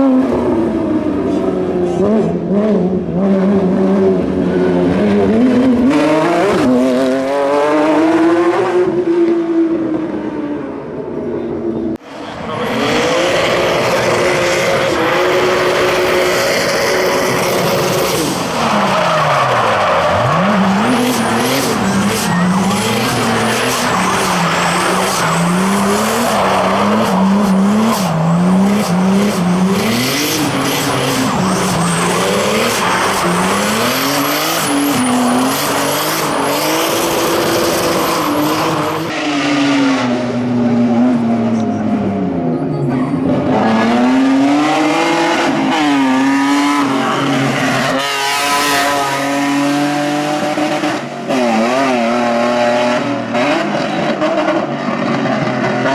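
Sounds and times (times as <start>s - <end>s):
rally car engine revving: 0.0s - 55.9s
tyres skidding: 12.0s - 55.9s.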